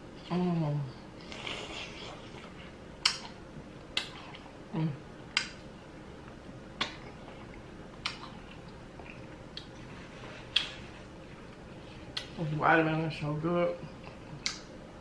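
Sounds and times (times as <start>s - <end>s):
person humming: 4.7s - 5.0s
wet lip smacks: 10.5s - 10.8s.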